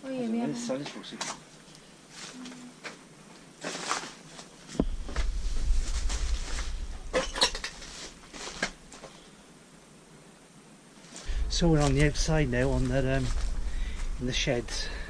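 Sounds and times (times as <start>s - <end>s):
low rumble on microphone: 4.8s - 8.0s, 11.3s - 15.0s.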